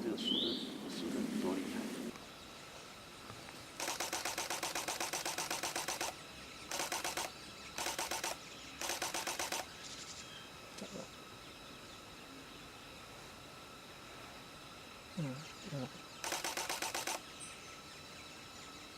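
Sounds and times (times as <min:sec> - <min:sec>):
camera shutter bursts: 0:03.8 - 0:09.7, 0:16.2 - 0:17.3.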